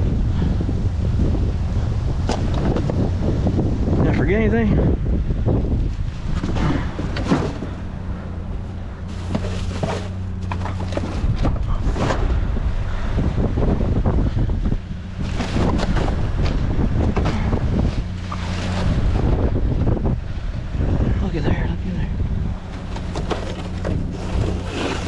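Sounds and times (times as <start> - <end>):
steady low hum: 0.0 - 25.0
wind buffeting microphone: 0.0 - 25.0
rummaging through trash: 6.4 - 7.8, 8.7 - 12.3, 22.9 - 25.0.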